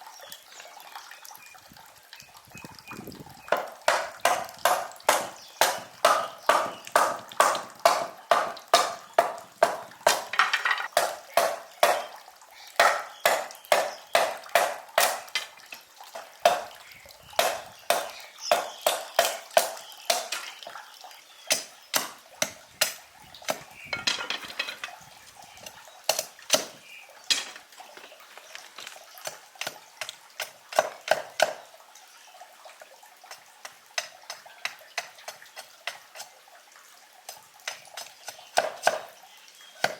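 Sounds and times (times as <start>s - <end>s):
blade chopping wood: 3.5s - 12.1s.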